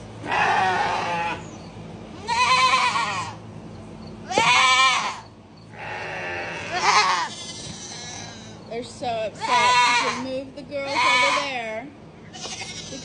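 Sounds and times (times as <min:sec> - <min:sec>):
goats and rams bleating: 0:00.2 - 0:01.5, 0:02.2 - 0:03.4, 0:04.2 - 0:08.6, 0:09.4 - 0:11.6, 0:12.2 - 0:13.0.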